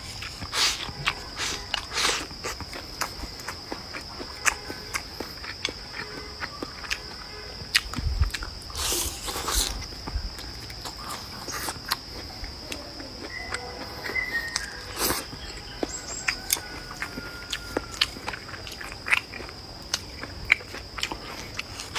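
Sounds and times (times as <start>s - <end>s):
chewing and mouth noises: 0.0s - 21.9s
crunchy bites: 0.0s - 21.9s
insect chirring: 0.0s - 21.9s.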